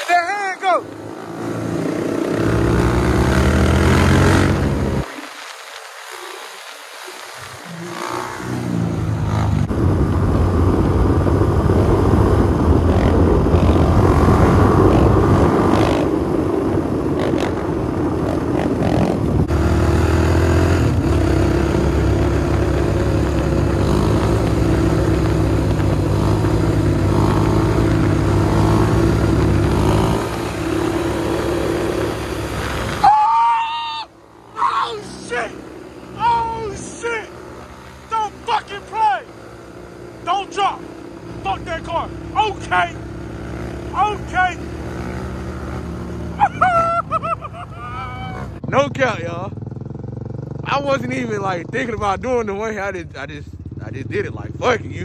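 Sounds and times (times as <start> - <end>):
dirt bike engine revving: 0.0 - 5.3, 7.2 - 52.9.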